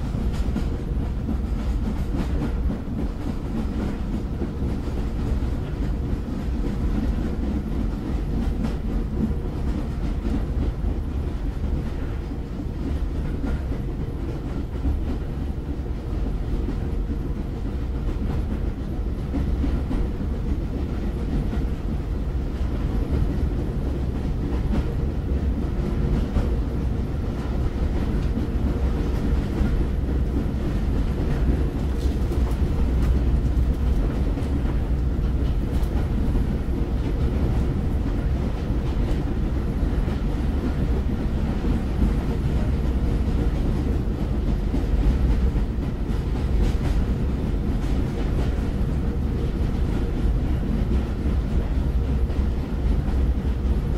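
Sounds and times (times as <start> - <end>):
train rumbling: 0.0 - 53.9
faint rail clicks: 16.1 - 39.4.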